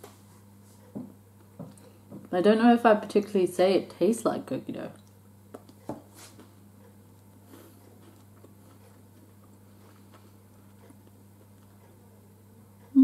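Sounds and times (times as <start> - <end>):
steady low hum: 0.0 - 13.0
chewing soft sweet: 7.2 - 12.9.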